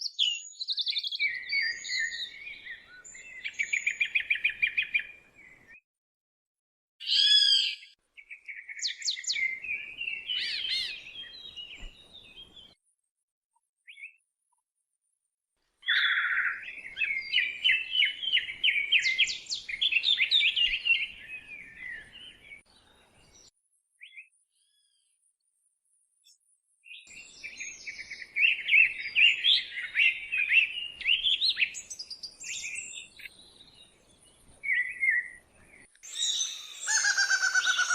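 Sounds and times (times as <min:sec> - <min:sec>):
songbird chirping and warbling: 0:00.0 - 0:05.8, 0:07.0 - 0:12.8, 0:13.8 - 0:14.2, 0:15.8 - 0:25.2, 0:25.8 - 0:37.9.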